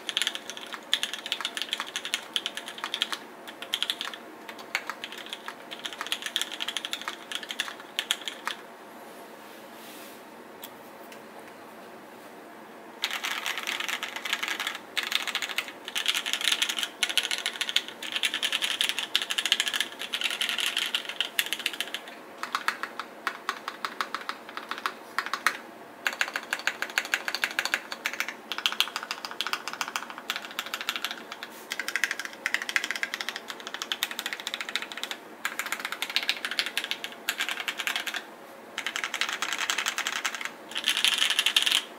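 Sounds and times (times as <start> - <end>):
mechanical keyboard typing: 0.0 - 8.6, 13.0 - 41.9.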